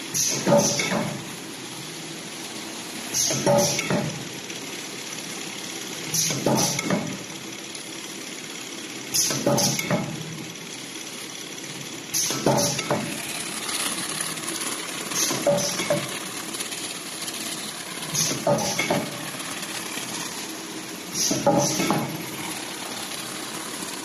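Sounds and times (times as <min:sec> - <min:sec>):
packing machine humming: 0:00.0 - 0:24.0.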